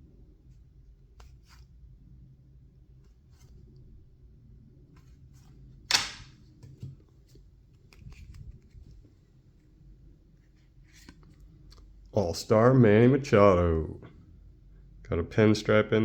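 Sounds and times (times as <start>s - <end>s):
sharp snap: 5.9s - 6.4s.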